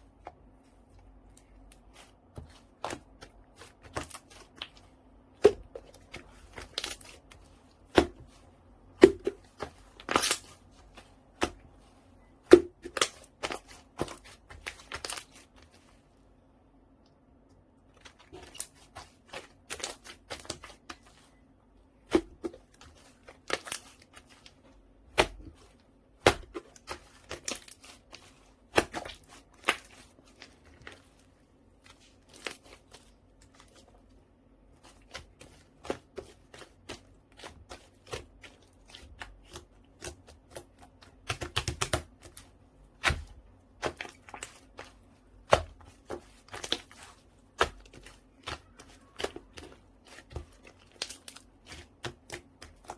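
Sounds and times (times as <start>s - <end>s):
slime squished by hand: 22.0s - 52.9s.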